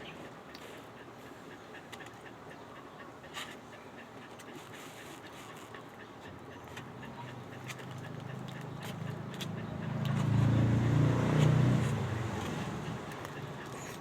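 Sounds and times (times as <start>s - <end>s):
vehicle engine passing by: 9.0s - 14.0s.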